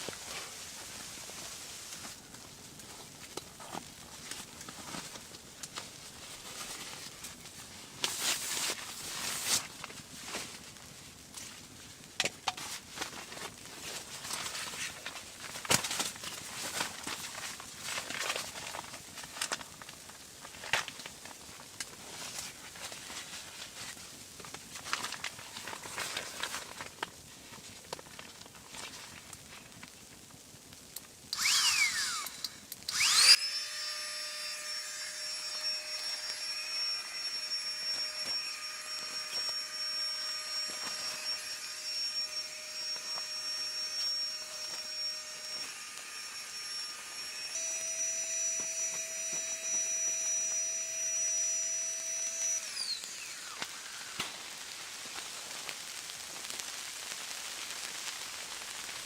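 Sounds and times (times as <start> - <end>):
small electric motor whining: 31.3 - 55.7.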